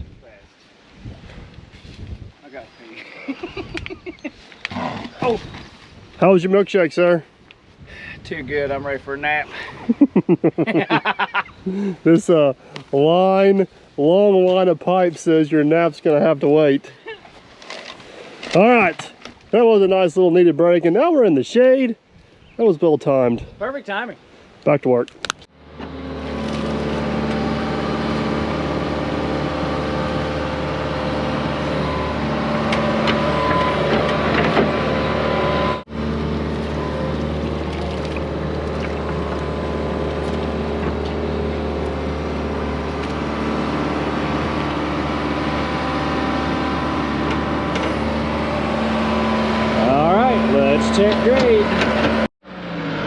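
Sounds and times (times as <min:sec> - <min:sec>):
excavator diesel engine running: 0:25.5 - 0:52.3.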